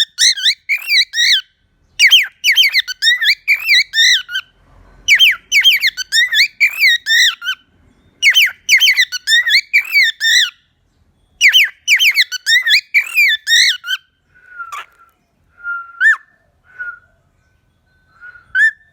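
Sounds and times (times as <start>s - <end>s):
cockatiel chirping and whistling: 0.0s - 4.4s, 5.1s - 7.6s, 8.2s - 10.6s, 11.4s - 14.0s.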